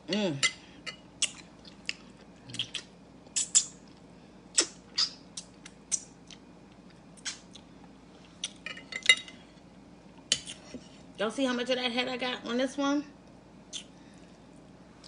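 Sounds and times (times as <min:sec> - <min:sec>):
wet mouth smacks while eating: 0:02.6 - 0:03.8, 0:04.6 - 0:06.1, 0:07.2 - 0:07.6, 0:13.7 - 0:13.9.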